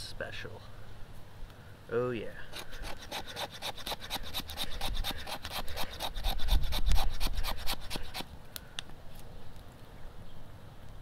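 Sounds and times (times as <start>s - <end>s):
knife scraping wood: 2.4s - 8.3s.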